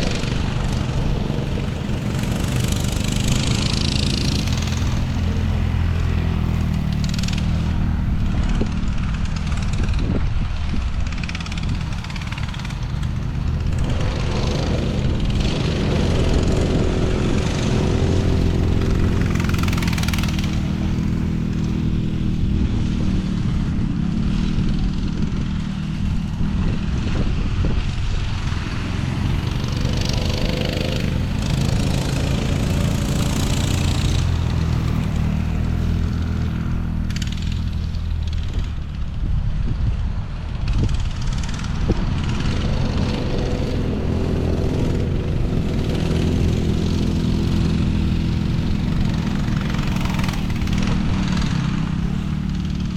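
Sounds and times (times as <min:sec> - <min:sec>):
noisy rush: 0:00.0 - 0:52.9
off-road engine running: 0:00.0 - 0:52.9.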